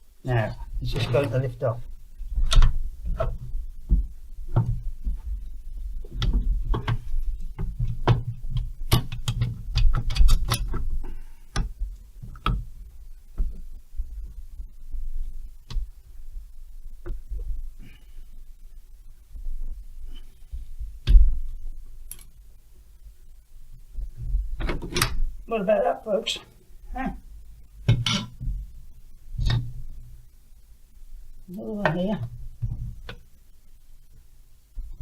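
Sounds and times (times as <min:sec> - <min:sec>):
metal parts clicking and knocking: 0:08.9 - 0:10.9.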